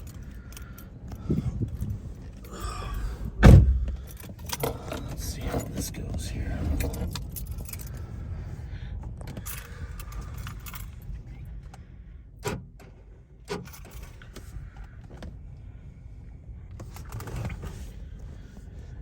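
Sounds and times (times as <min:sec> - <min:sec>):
wind buffeting microphone: 0:00.8 - 0:11.4.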